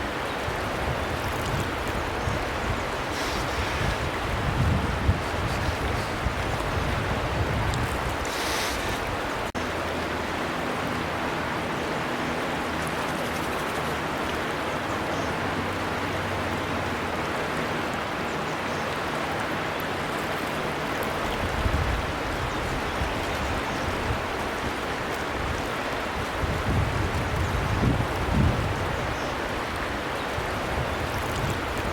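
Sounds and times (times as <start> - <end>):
river water rushing: 0.0 - 31.9.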